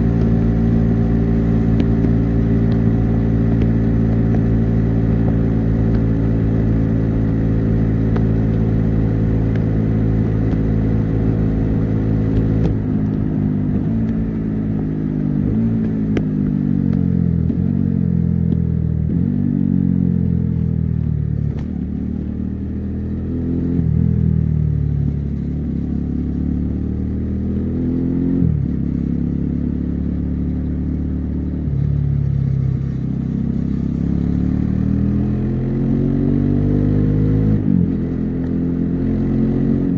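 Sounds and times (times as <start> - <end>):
motorcycle engine and exhaust revving: 0.0 - 39.9.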